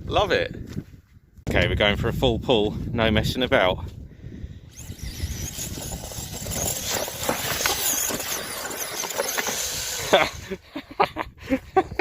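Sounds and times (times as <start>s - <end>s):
drivetrain and tyre noise: 4.7s - 10.4s
electric motor whine: 4.7s - 10.6s.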